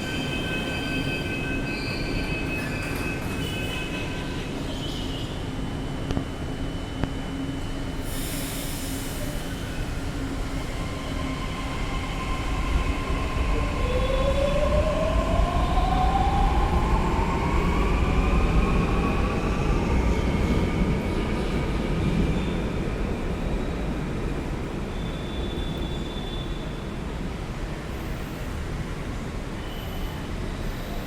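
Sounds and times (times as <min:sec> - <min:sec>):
electric train rumbling: 0:00.0 - 0:31.0.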